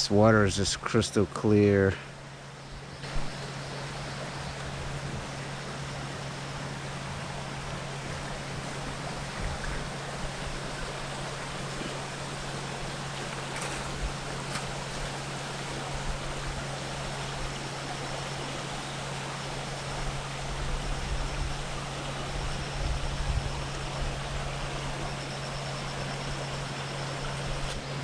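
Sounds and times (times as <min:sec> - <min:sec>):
water rushing over rocks: 0:06.8 - 0:20.9.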